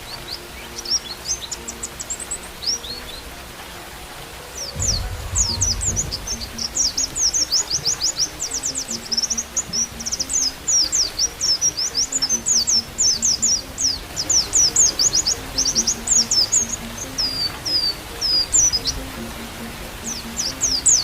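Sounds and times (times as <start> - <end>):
bird twittering song: 0.0 - 21.0
faint low music notes: 0.0 - 21.0
brief low rumble: 4.8 - 7.3.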